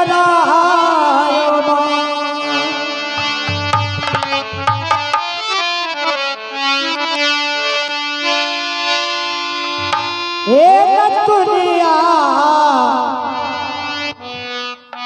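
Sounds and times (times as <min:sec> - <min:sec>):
harmonium melody: 0:00.0 - 0:15.0
drum strokes: 0:03.2 - 0:05.5, 0:09.8 - 0:10.5.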